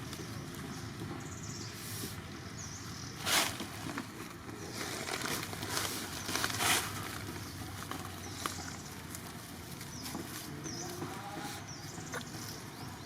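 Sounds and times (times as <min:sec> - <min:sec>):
rustling bursts: 0:03.2 - 0:07.3.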